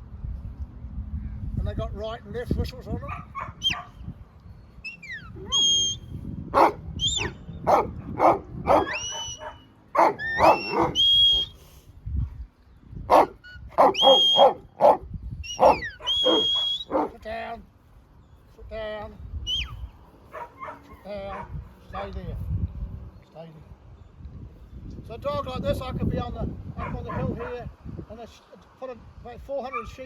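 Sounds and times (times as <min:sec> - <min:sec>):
dogs barking: 0:03.0 - 0:04.0, 0:06.5 - 0:11.6, 0:13.1 - 0:17.2, 0:20.2 - 0:21.6, 0:26.8 - 0:27.7
person whistling herding commands: 0:04.8 - 0:06.1, 0:07.0 - 0:07.4, 0:08.8 - 0:09.6, 0:10.2 - 0:11.8, 0:13.4 - 0:14.6, 0:15.4 - 0:17.1, 0:19.5 - 0:19.8.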